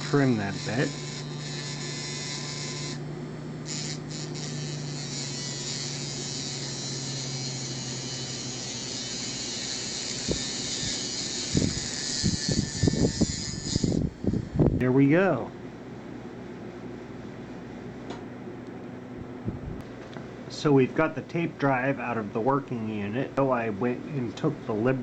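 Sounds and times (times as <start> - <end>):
small electric motor humming: 0.0 - 14.8.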